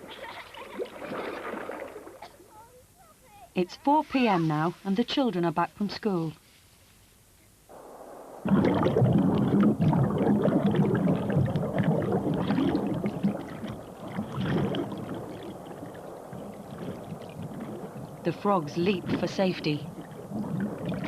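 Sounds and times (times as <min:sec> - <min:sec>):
pond water splashing: 0:00.0 - 0:02.6, 0:07.7 - 0:21.0.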